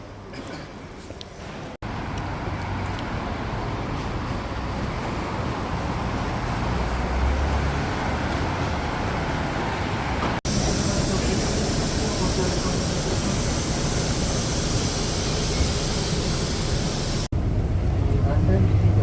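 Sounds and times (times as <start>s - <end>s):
vehicle rumble with low hum: 10.5s - 19.0s.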